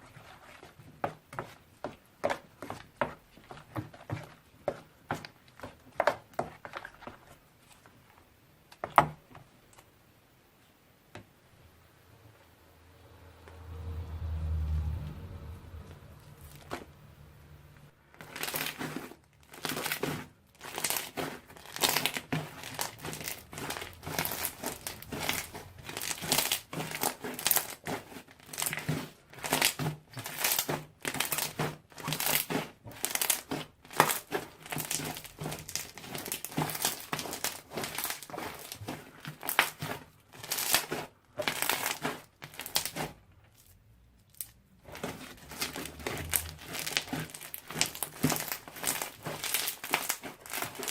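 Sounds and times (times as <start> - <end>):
slime squeezed by hand crackling: 18.2 - 50.9.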